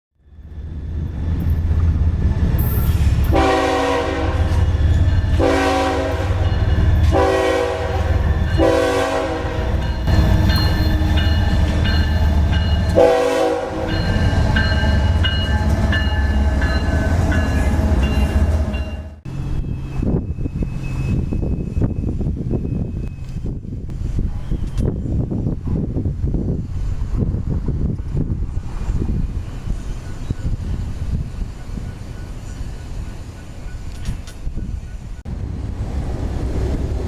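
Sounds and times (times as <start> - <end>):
grade crossing signal: 0.2 - 25.8, 26.7 - 37.0
diesel locomotive engine rumble: 0.2 - 37.0
locomotive air horn: 3.2 - 4.7, 5.3 - 11.7, 12.9 - 16.6.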